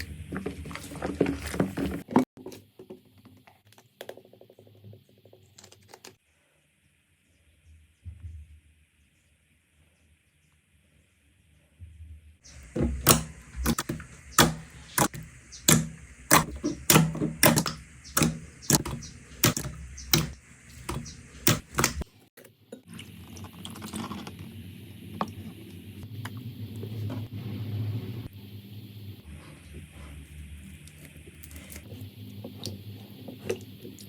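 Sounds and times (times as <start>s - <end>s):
slime squishing with crackles: 29.6s - 34.0s.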